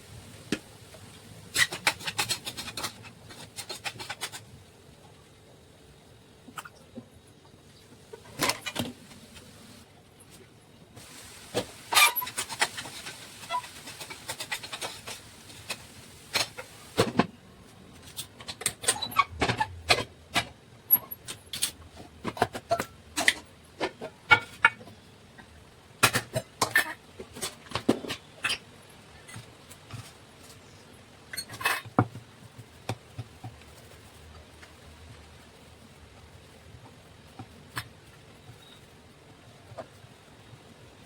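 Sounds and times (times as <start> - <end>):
soft hiss: 4.6 - 18.2
kitchen utensils knocking and clinking: 11.5 - 17.2.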